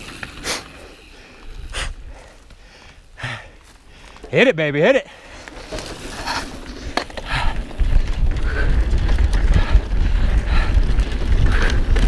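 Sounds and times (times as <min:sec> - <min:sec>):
bike rattling on dirt: 0:00.0 - 0:12.0
wind rumble on microphone: 0:06.2 - 0:12.0.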